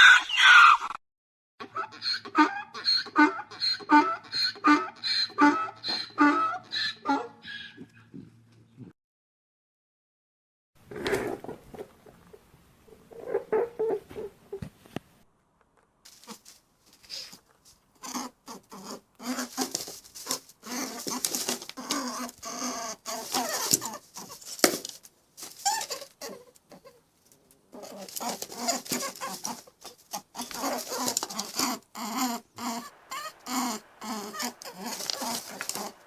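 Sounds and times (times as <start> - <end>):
farm animals calling: 0.0 - 0.9, 1.6 - 8.3, 27.8 - 36.0.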